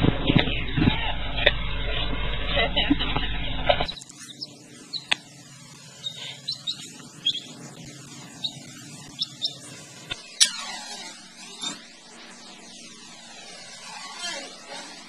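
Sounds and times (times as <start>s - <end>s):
small bird peeping: 2.8s - 11.1s.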